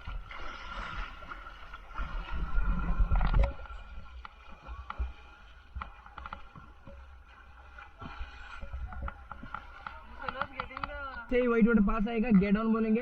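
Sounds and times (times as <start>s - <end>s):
paddles splashing in river water: 0.0s - 11.3s.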